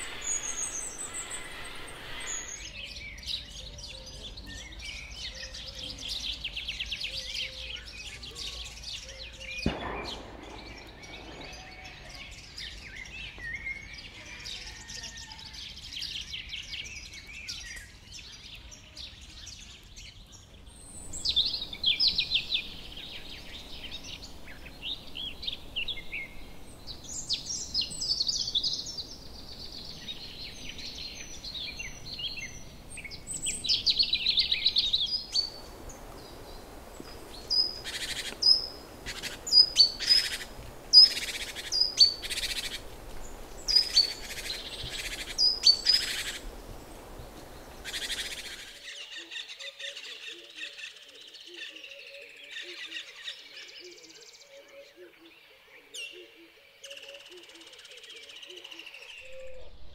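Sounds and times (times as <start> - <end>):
sharp clipped bird calls: 0.0 - 4.0, 9.0 - 14.7, 20.8 - 46.5, 47.3 - 49.3
wild birds chirping and trilling: 0.0 - 59.9.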